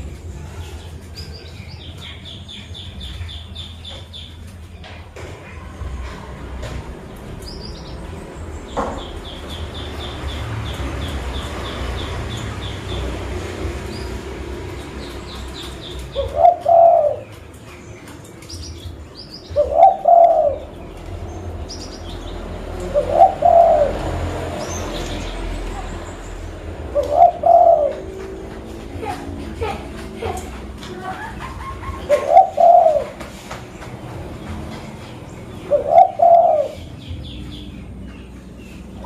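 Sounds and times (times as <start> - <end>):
small birds chirping: 0.0 - 39.0
dove cooing: 15.7 - 17.3, 19.6 - 20.7, 22.8 - 24.3, 26.8 - 28.4, 29.0 - 33.2, 35.6 - 36.9.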